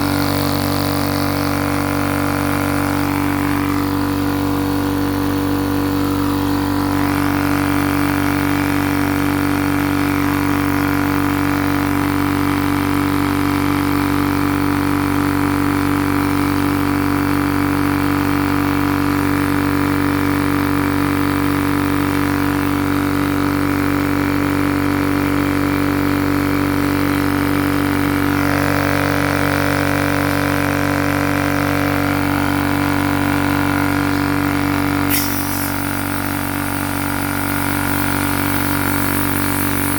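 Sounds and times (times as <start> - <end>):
air compressor humming: 0.0 - 15.4, 24.3 - 39.9.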